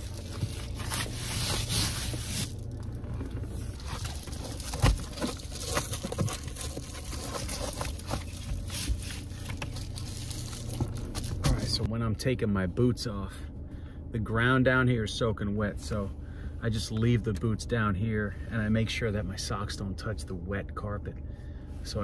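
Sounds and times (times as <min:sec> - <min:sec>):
scraping and knocking in a car: 0:00.0 - 0:11.9
steady low hum: 0:00.0 - 0:22.0.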